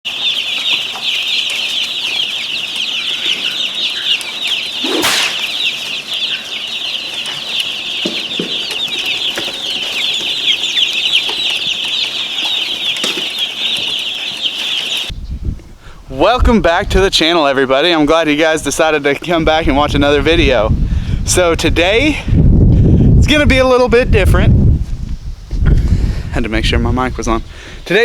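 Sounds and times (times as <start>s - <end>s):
baby chicks peeping: 0.0s - 15.7s.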